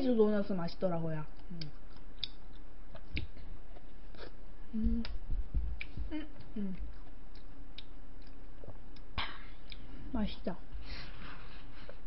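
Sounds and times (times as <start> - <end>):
mouth clicks and chewing: 1.4 - 5.2, 5.8 - 9.9
person murmuring mm: 4.2 - 5.2, 6.0 - 6.9.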